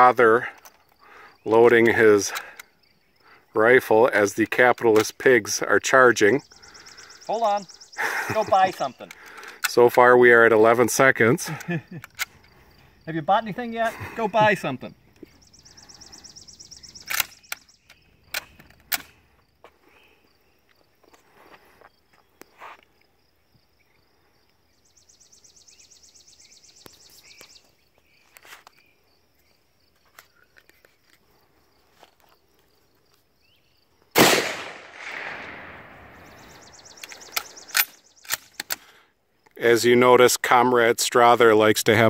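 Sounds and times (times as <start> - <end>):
rifle bolt metallic clicks: 11.6 - 12.5, 17.0 - 19.2, 37.0 - 38.8
rifle shot echoing: 34.2 - 36.5.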